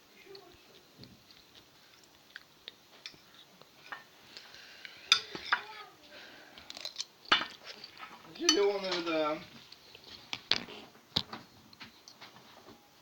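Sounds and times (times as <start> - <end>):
dishes and cutlery clinking: 5.0 - 5.8, 6.8 - 9.4.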